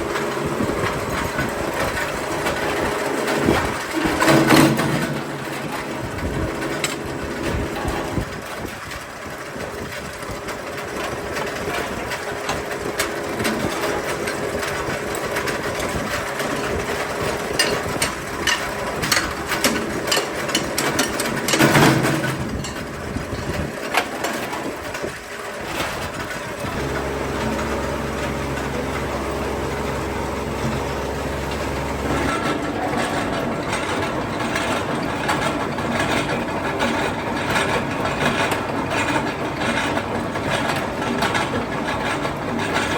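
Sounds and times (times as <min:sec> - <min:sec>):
workshop machinery running: 0:00.0 - 0:42.9
sharp mechanical clicks and knocks: 0:12.5 - 0:24.6
low motor hum: 0:26.6 - 0:41.5.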